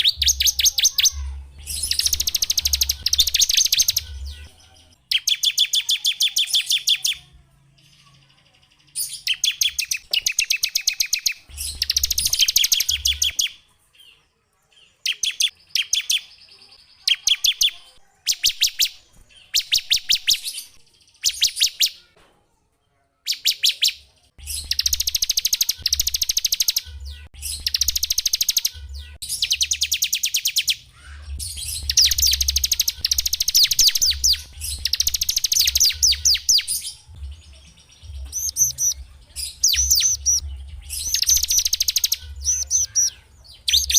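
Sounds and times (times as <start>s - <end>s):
songbird trilling: 0.0s - 4.4s, 24.5s - 37.0s, 38.1s - 43.9s.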